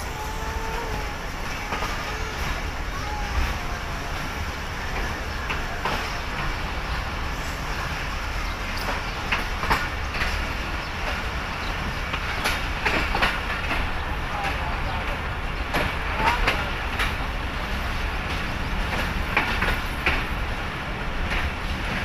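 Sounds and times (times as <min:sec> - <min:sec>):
wheels clicking and knocking: 0:00.0 - 0:17.3
train coach rolling rumble: 0:00.0 - 0:22.0.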